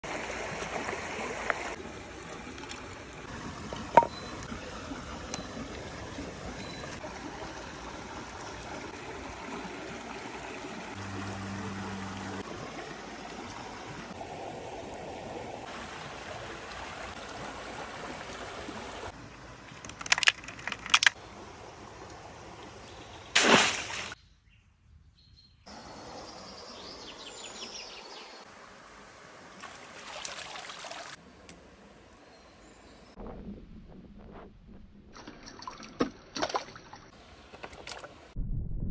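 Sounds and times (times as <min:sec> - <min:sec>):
stream water flowing: 0:00.0 - 0:24.2, 0:25.7 - 0:32.8
low steady hum: 0:11.0 - 0:13.6.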